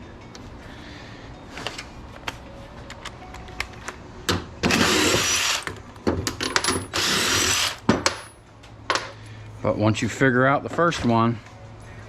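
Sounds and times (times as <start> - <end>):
power drill bursts: 4.7 - 5.7, 6.9 - 7.8.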